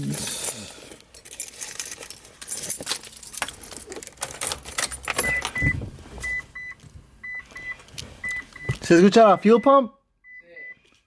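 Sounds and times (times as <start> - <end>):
car keys jangling: 0.0 - 5.7
car warning chime beeping: 5.2 - 10.8
thump: 5.6 - 6.2.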